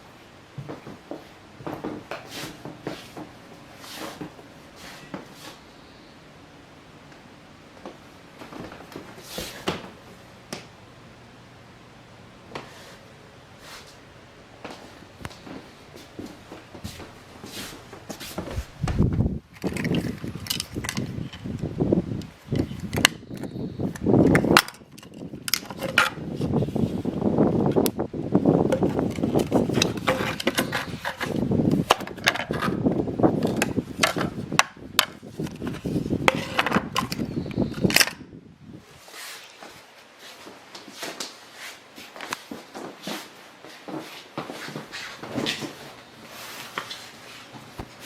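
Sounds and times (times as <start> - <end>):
rustling handling noise: 0.6 - 5.8, 12.5 - 21.6, 39.0 - 48.0.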